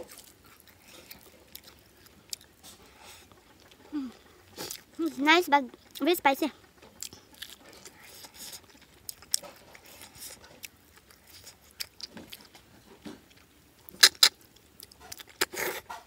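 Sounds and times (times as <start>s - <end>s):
chewing and lip smacking: 0.0s - 16.0s.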